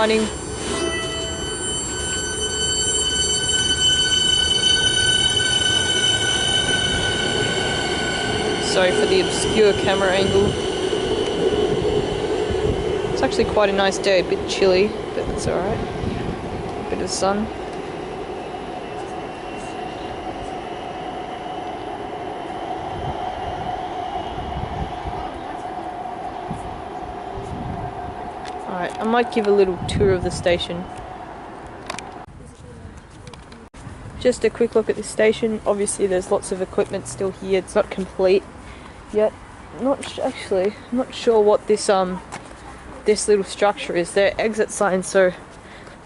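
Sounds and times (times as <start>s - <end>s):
electric train whine: 0.0s - 32.3s
train cars rumbling: 0.0s - 33.6s.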